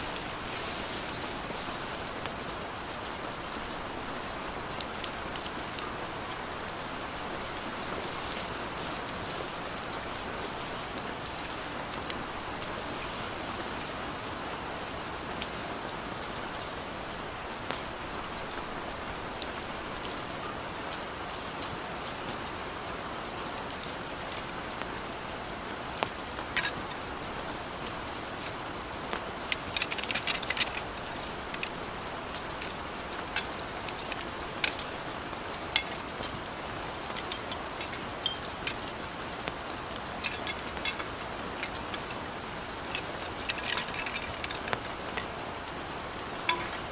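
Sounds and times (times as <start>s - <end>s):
sharp ticks and clicks: 32.6s - 35.2s, 40.2s - 42.3s.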